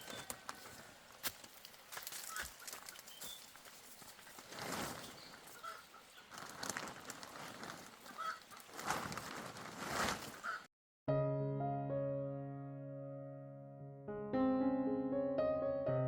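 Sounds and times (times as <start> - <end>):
rustling noise: 0.0 - 10.7
chickens clucking: 5.0 - 6.3.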